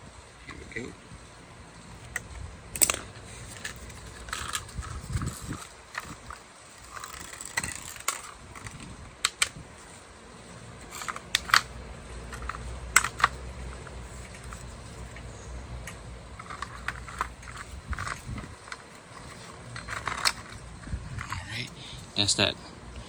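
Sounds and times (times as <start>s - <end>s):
door lock parts clicking and knocking: 10.9s - 13.4s.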